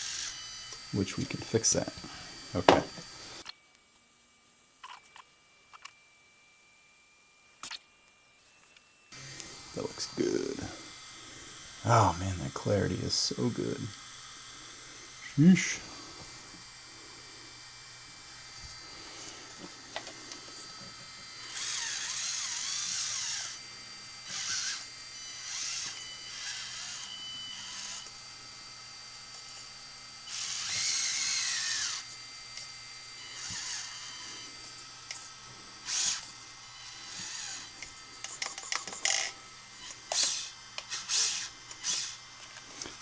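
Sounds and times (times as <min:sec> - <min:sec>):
toy car electric motor whining: 0:00.0 - 0:03.6, 0:08.6 - 0:43.0.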